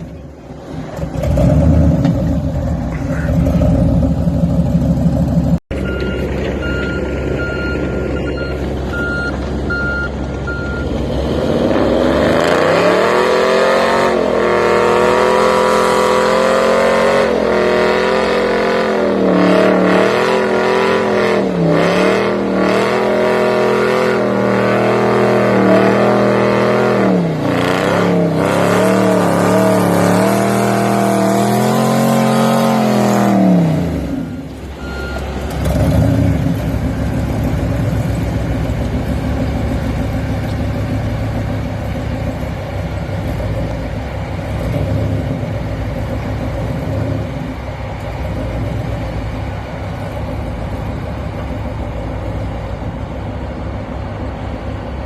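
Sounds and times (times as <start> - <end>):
low engine rumble: 0.0 - 11.8, 27.2 - 55.0
truck engine at high revs: 0.0 - 55.0.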